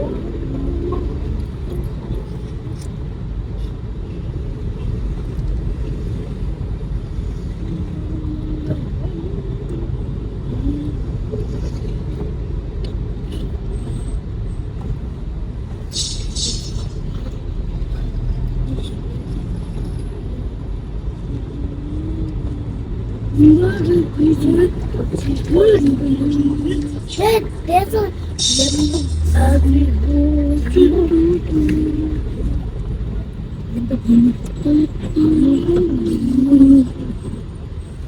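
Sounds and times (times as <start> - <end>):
car engine and tyres rumbling: 0.0 - 38.0
brief hiss: 15.9 - 17.0.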